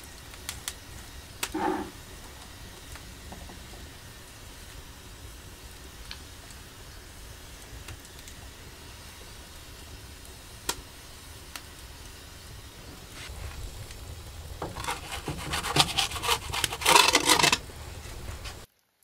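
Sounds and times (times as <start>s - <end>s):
scraping and rubbing strokes: 1.5s - 2.6s, 14.6s - 18.7s.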